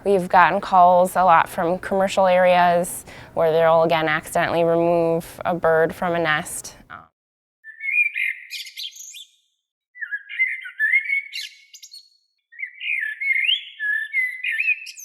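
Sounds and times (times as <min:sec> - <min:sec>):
songbird warbling: 0:07.6 - 0:09.4, 0:10.0 - 0:15.0.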